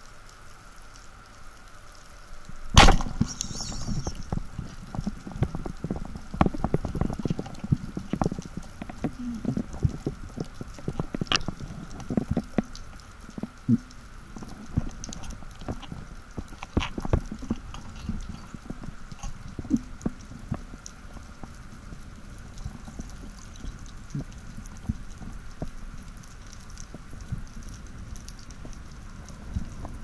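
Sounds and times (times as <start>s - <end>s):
faint steady hum: 0.0s - 30.0s
underwater clicks and knocks: 2.8s - 21.6s.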